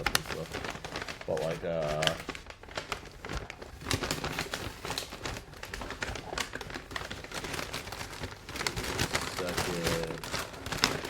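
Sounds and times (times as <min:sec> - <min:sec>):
food packaging crinkling: 0:00.0 - 0:11.0.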